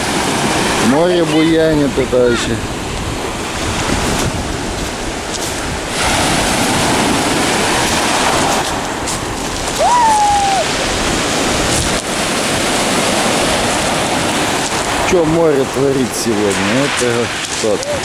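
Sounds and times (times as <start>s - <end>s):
waves breaking: 0.0s - 18.0s
wind buffeting microphone: 0.0s - 18.0s
brief high cry: 9.8s - 10.8s.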